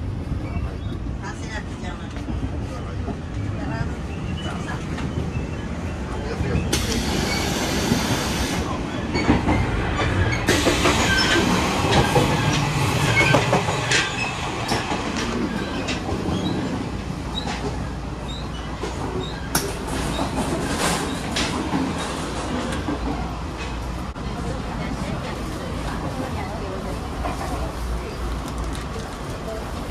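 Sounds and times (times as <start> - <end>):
train rumbling on rails: 0.0 - 29.9
high wheel squeaks: 8.9 - 21.4.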